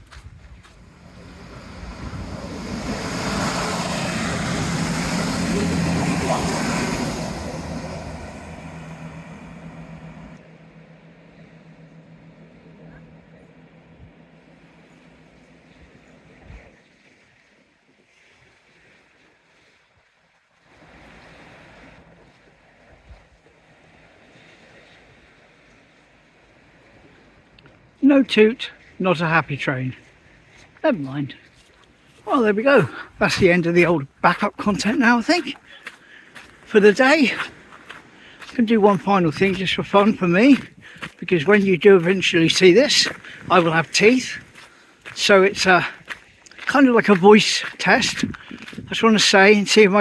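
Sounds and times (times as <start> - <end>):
train engine humming: 0.0 - 17.1
wind buffeting microphone: 0.0 - 17.5, 36.3 - 49.4
sea waves washing in: 0.0 - 50.0
train wheels rushing: 0.7 - 15.4.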